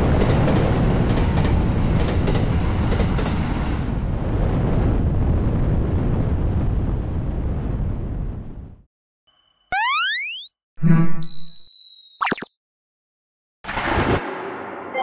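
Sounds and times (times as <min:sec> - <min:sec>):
electric train rumbling past: 0:00.0 - 0:04.3.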